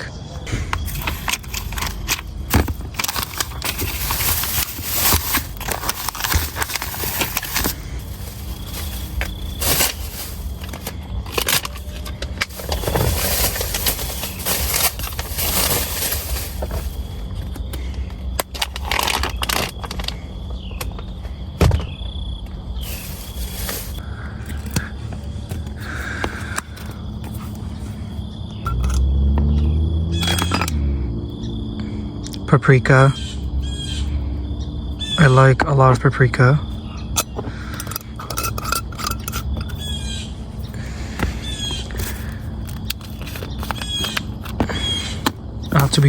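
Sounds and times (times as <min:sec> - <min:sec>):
scraping and rustling: 0:00.5 - 0:17.7, 0:22.8 - 0:24.0, 0:40.6 - 0:46.0.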